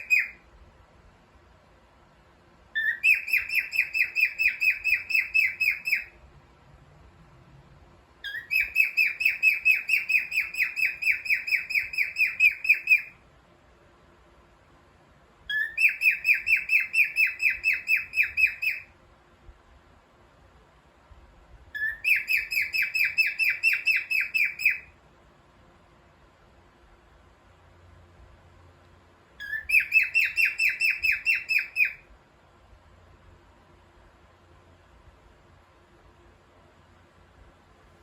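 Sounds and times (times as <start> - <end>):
cockatiel chirping: 0.0 - 0.4, 2.8 - 6.2, 8.2 - 13.2, 15.5 - 18.9, 21.8 - 24.9, 29.4 - 32.1.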